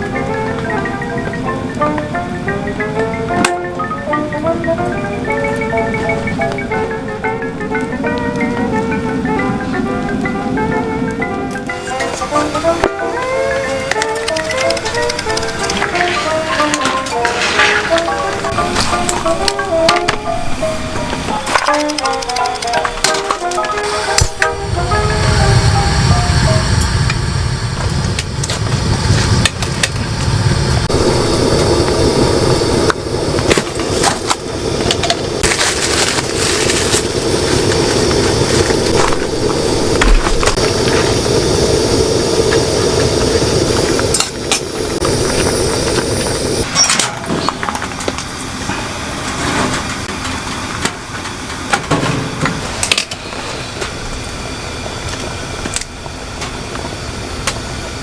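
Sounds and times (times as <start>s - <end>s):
wind: 0.0s - 58.0s
heavy rain pouring: 4.0s - 46.8s
knocks and clicks: 21.0s - 24.5s.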